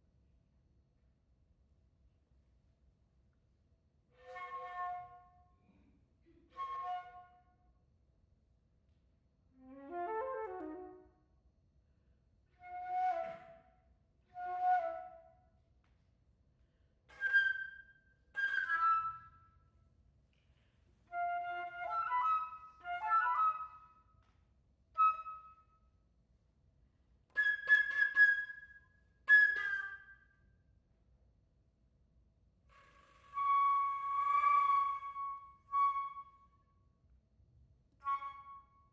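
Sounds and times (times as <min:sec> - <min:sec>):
solo flute playing: 0:09.6 - 0:11.1, 0:12.6 - 0:13.6, 0:17.1 - 0:19.4, 0:21.1 - 0:23.9, 0:27.4 - 0:30.1, 0:33.3 - 0:36.5, 0:38.0 - 0:38.9.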